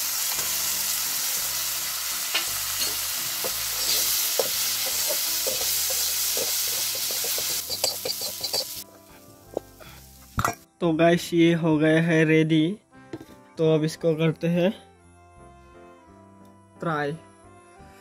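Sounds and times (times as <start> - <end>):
food sizzling in hot oil: 0.0 - 10.7.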